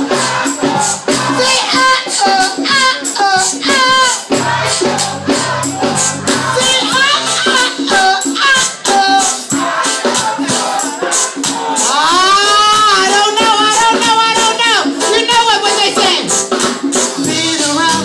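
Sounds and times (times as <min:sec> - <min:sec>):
live band song with vocals: 0:00.0 - 0:18.0.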